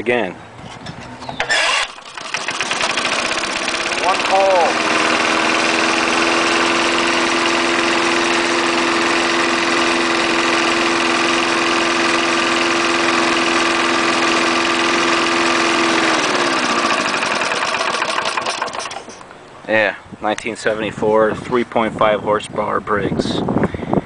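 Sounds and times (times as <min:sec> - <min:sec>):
lawn mower engine running: 0:01.3 - 0:19.3.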